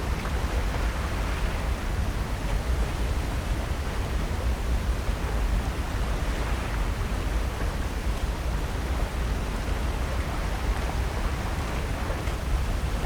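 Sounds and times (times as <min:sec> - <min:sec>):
ocean surf: 0:05.2 - 0:13.0.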